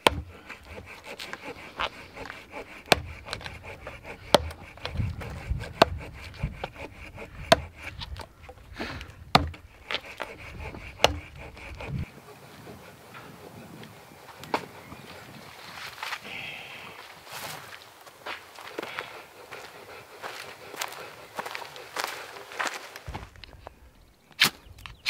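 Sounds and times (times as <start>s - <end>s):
wood knocking and snapping: 0.0s - 12.1s, 23.0s - 25.0s
rustling: 20.2s - 25.0s.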